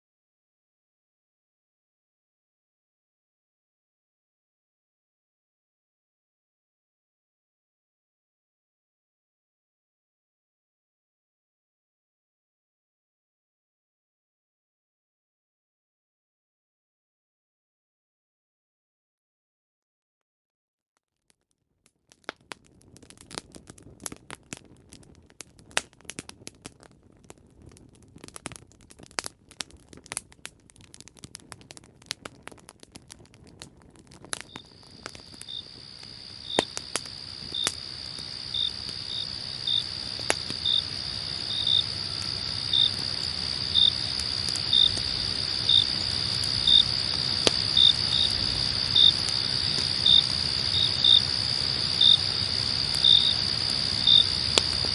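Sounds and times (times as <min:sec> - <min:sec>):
campfire crackling and popping: 0:21.2 - 0:54.9
crickets trilling and chirping: 0:34.2 - 0:54.9.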